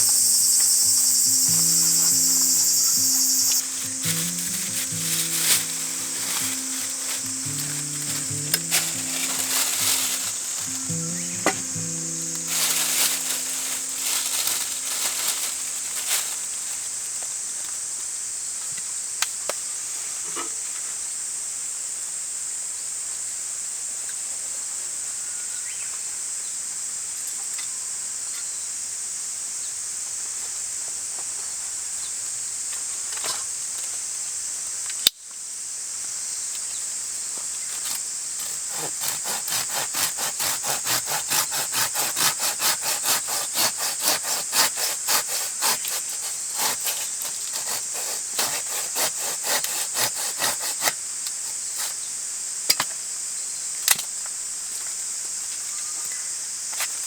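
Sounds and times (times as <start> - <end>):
hand saw cutting wood: 0.5 - 16.6, 37.8 - 52.1.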